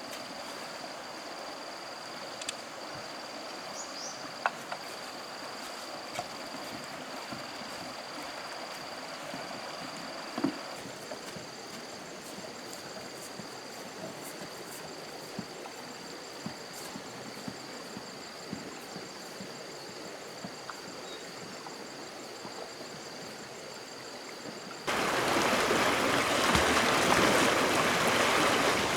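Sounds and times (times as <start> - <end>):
stream water flowing: 24.8 - 28.9.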